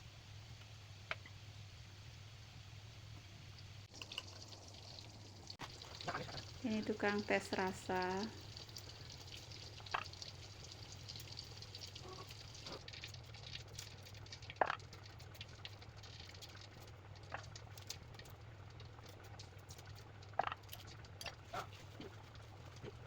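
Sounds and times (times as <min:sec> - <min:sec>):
food sizzling in a pan: 0:00.0 - 0:15.5
low steady hum: 0:00.0 - 0:23.0.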